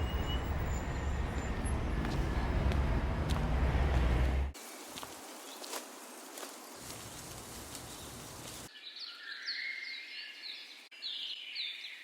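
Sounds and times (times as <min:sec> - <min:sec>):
steady hiss with ticks: 0:04.6 - 0:08.7.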